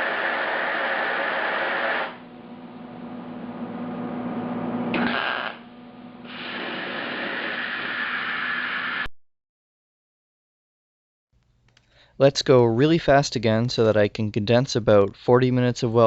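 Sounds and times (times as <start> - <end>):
welding arc crackling and hissing: 0.0 - 2.2, 4.9 - 9.1
low hum: 0.0 - 9.1.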